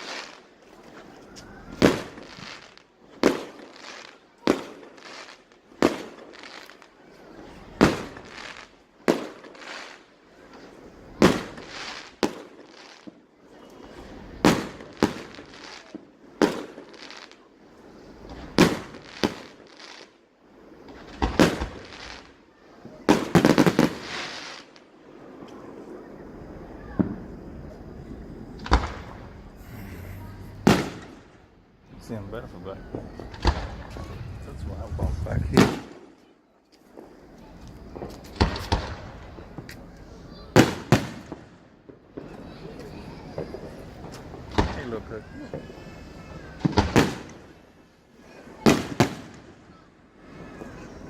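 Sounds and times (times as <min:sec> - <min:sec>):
fireworks bursting with crackle: 0:00.0 - 0:51.0.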